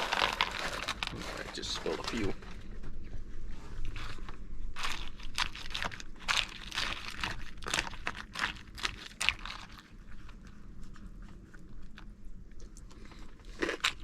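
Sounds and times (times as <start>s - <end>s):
food pouch crinkling: 0.0s - 2.4s, 4.8s - 10.5s, 13.4s - 14.0s.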